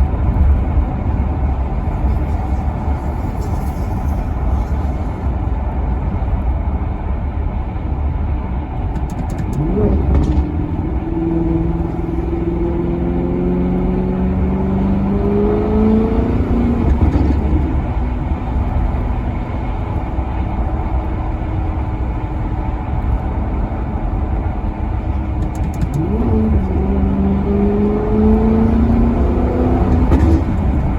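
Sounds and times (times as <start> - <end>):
deep rumble: 0.0 - 30.9
car engine accelerating: 8.5 - 30.9.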